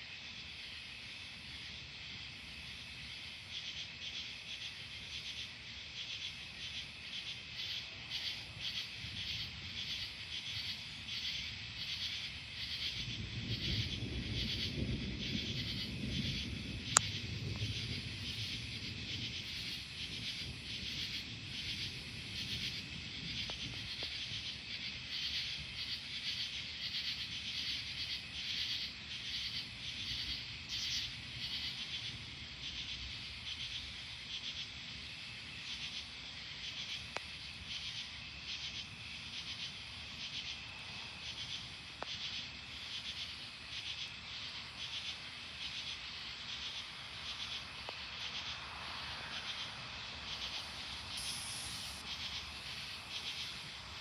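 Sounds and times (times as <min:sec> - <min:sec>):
night insects chirping: 0:00.0 - 0:54.0
distant thunder rumble: 0:13.0 - 0:24.0.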